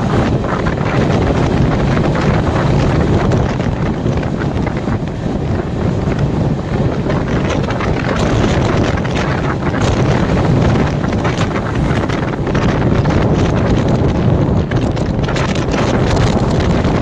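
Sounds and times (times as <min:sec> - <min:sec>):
rumble of train wheels on rails: 0:00.0 - 0:17.0
wind buffeting microphone: 0:00.0 - 0:17.0.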